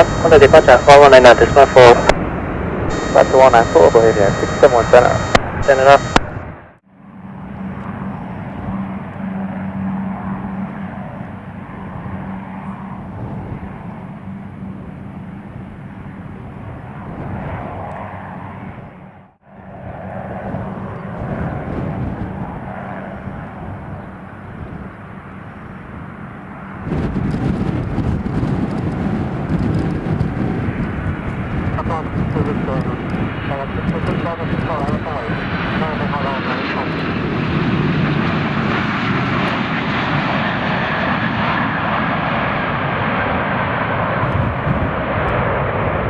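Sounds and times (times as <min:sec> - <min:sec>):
jet engine noise: 0:00.0 - 0:46.0
wind noise: 0:11.7 - 0:14.1, 0:15.6 - 0:19.1, 0:19.7 - 0:39.5, 0:43.9 - 0:46.0.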